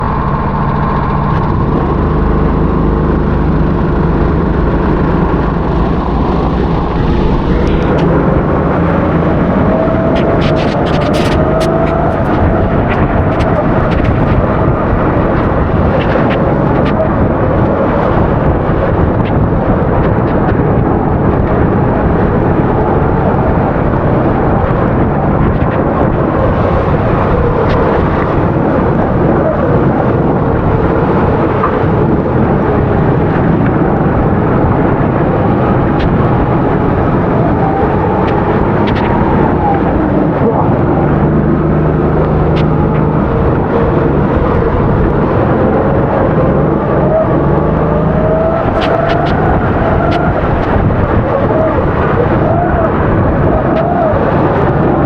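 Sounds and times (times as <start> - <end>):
dense rushing noise: 0.0 - 55.0
kart engine at racing speed: 0.0 - 55.0
scattered clicks: 4.4 - 20.6, 35.7 - 40.9, 42.2 - 45.8, 48.2 - 52.1.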